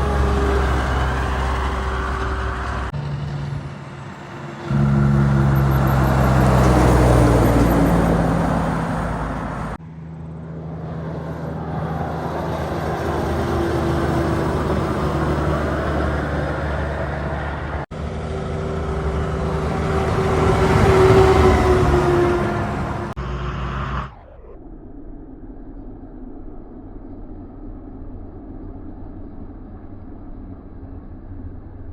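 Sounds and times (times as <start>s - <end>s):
heavy lorries driving past: 0.0s - 24.4s.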